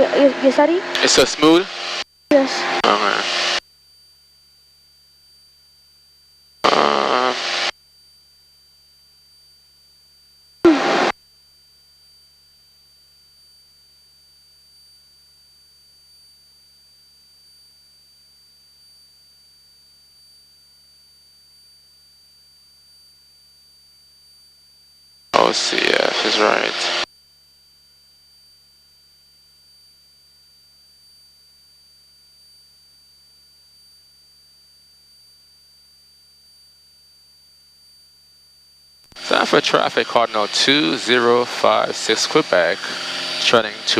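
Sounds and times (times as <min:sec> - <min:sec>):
high electronic whine: 0:00.0 - 0:03.6, 0:06.6 - 0:07.7, 0:10.7 - 0:11.1, 0:25.4 - 0:27.1, 0:39.1 - 0:43.9
high electrical whine: 0:00.0 - 0:06.0, 0:06.6 - 0:08.4, 0:10.7 - 0:11.2, 0:25.3 - 0:27.1, 0:27.7 - 0:43.9
low hum: 0:39.2 - 0:43.9.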